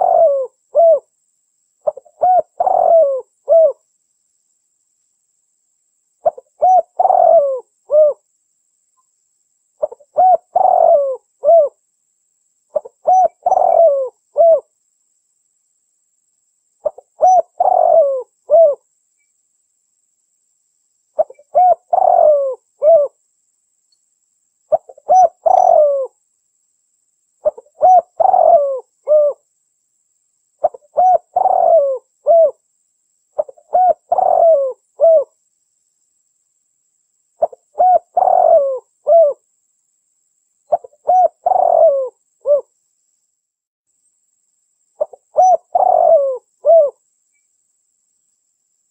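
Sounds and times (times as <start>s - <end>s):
dove cooing: 0.0s - 1.1s, 1.8s - 3.8s, 6.2s - 8.2s, 9.8s - 11.8s, 12.7s - 14.7s, 16.8s - 18.8s, 21.2s - 23.2s, 24.7s - 26.2s, 27.4s - 29.4s, 30.6s - 32.6s, 33.4s - 35.3s, 37.4s - 39.4s, 40.7s - 42.7s, 45.0s - 47.0s.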